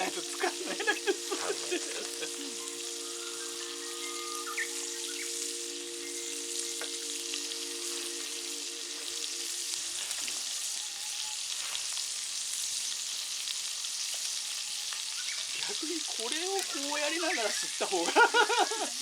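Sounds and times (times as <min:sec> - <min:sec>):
low hum of steady tones: 0:00.0 - 0:10.1
sizzling hiss with crackles: 0:00.0 - 0:19.0.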